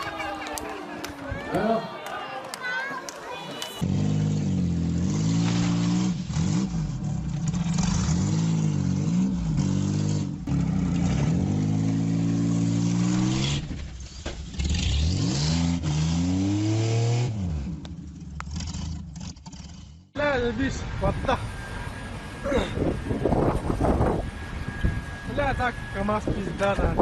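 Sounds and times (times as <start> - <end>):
engine revving: 3.8 - 27.0.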